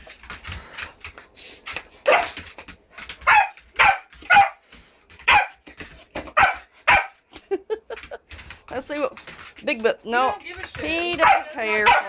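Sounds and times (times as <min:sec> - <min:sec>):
puppy barking: 0:02.1 - 0:02.4, 0:03.2 - 0:04.6, 0:05.2 - 0:05.6, 0:06.3 - 0:07.2, 0:11.2 - 0:12.0.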